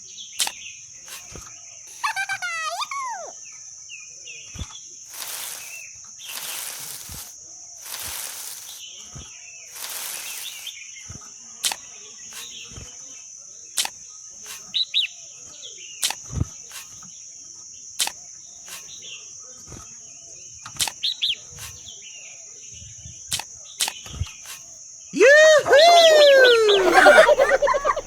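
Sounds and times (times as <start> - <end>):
sharp clicks: 0.4 - 2.9, 11.6 - 12.6, 13.8 - 14.7, 16.0 - 17.1, 18.0 - 19.0, 20.8 - 21.9, 23.3 - 24.8, 26.8 - 28.0
high-pitched insect drone: 0.4 - 3.4, 24.5 - 28.0
bird chirping: 26.6 - 28.0.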